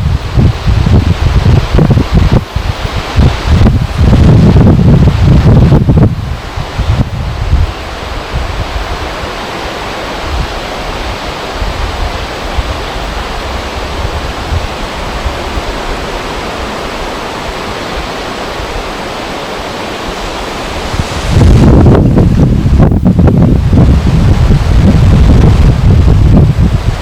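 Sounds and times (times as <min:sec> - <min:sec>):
river water rushing: 0:00.0 - 0:27.0
wind buffeting microphone: 0:00.0 - 0:27.0
wind rushing: 0:00.0 - 0:27.0.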